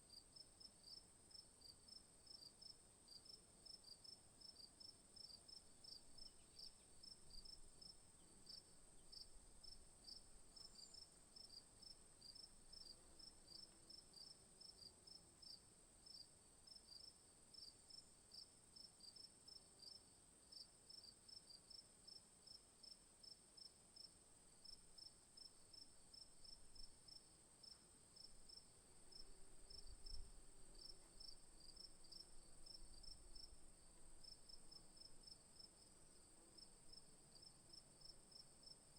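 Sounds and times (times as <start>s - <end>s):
insects chirping: 25.4s - 38.8s.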